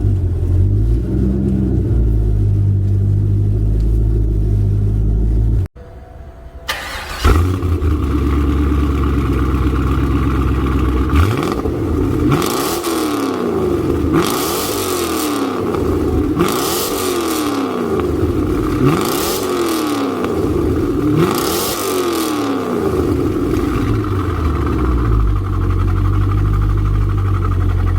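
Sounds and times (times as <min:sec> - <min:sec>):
car engine idling: 0:00.0 - 0:27.9
engine revving: 0:06.7 - 0:27.9.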